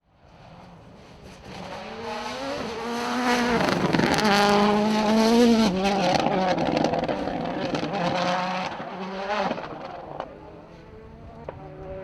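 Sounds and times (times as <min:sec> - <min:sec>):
rally car engine accelerating: 0:00.2 - 0:12.0.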